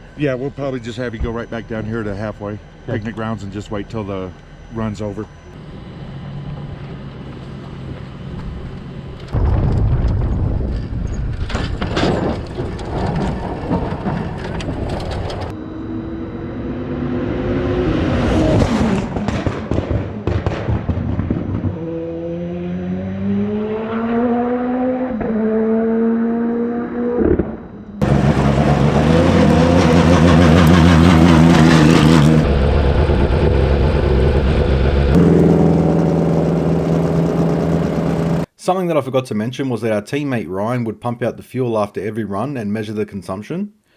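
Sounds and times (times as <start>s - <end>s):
race car engine at full throttle: 0.0s - 9.4s, 12.8s - 38.5s.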